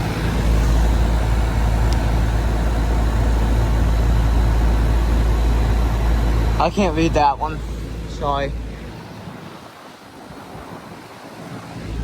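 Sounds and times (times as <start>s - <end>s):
compressor hum: 0.0s - 12.0s
fan airflow rushing: 0.0s - 12.0s.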